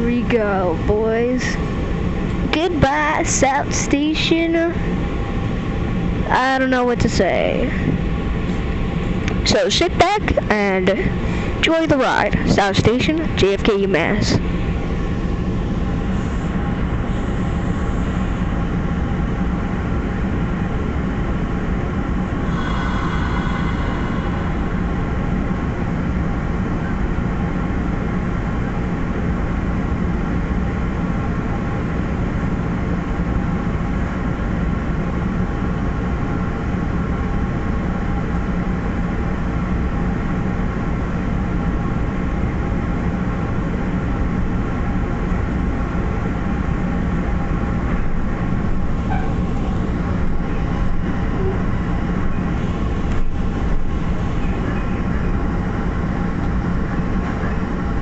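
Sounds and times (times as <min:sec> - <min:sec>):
train coach rumble and hum: 0:00.0 - 0:58.0
high-pitched squeal: 0:22.4 - 0:26.5.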